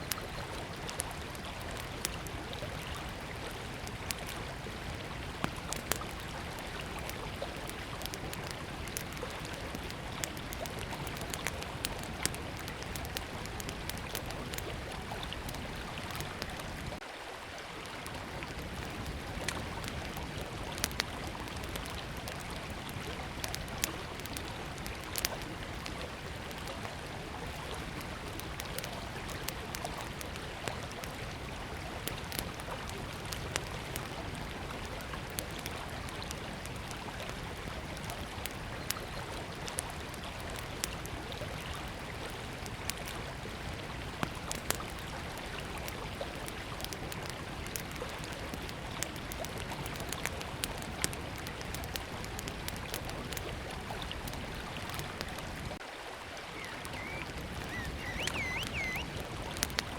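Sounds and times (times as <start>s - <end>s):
wood fire crackling: 0.0s - 17.0s, 17.8s - 55.8s, 56.6s - 59.9s
river flowing: 51.8s - 59.9s.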